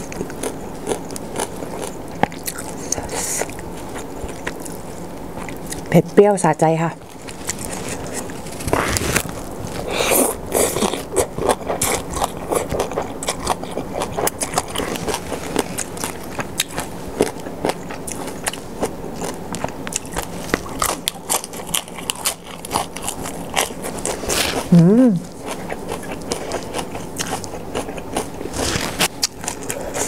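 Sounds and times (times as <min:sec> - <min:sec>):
wet chewing and crunching: 0:00.0 - 0:05.9, 0:07.0 - 0:24.7, 0:25.3 - 0:30.0
biting into lettuce leaf: 0:22.6 - 0:24.8, 0:25.5 - 0:30.0.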